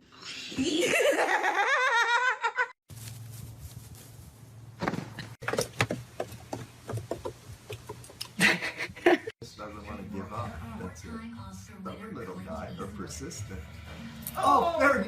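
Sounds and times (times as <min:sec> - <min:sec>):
light knocks and taps: 0:05.4 - 0:08.3.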